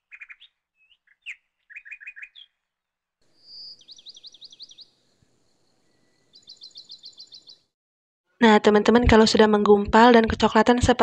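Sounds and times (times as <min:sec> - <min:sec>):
small birds chirping: 0:00.0 - 0:02.7, 0:03.3 - 0:07.7
bird whistled trill: 0:00.1 - 0:02.5, 0:03.4 - 0:04.9.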